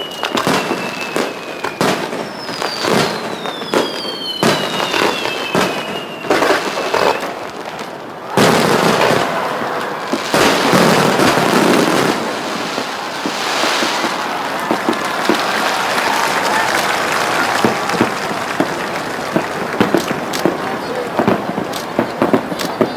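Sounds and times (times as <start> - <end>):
firework crackle: 0.0 - 22.9
firework falling whistles: 0.0 - 22.9
fireworks bangs: 0.0 - 22.9.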